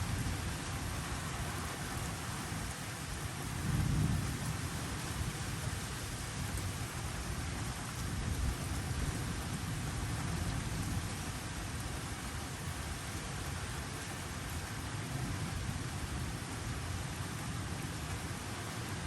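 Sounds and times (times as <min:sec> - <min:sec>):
steady rainfall: 0:00.0 - 0:19.0
low rumble of thunder: 0:03.5 - 0:05.8.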